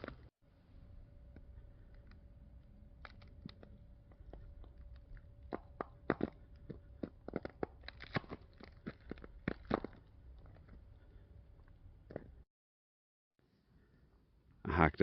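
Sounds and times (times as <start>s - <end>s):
ice crunching and cracking: 4.3s - 10.9s.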